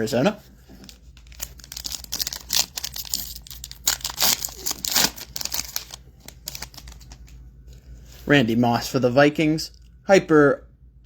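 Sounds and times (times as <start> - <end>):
foil wrapper tearing and crinkling: 0.8 - 7.4.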